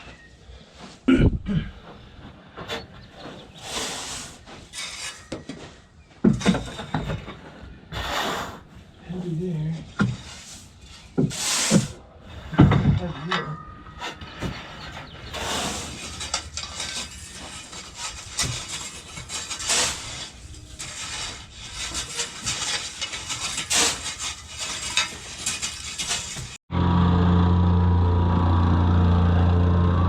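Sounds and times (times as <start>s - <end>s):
shovel scraping gravel: 2.2s - 12.6s, 14.0s - 26.6s
small engine running: 26.7s - 30.0s.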